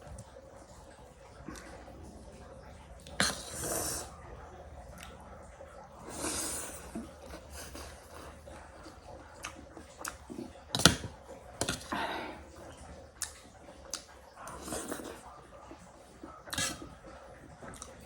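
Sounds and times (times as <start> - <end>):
soft slurps or breaths: 0.0 - 18.0
person chewing with clicks: 4.9 - 5.2, 6.1 - 12.0, 13.2 - 18.0.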